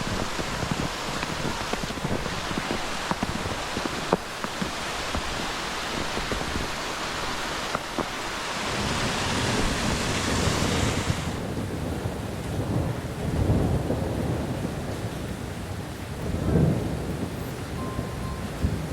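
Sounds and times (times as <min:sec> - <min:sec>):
wind and falling snow hissing: 0:00.0 - 0:11.9
wind rumble on microphone: 0:00.0 - 0:18.9.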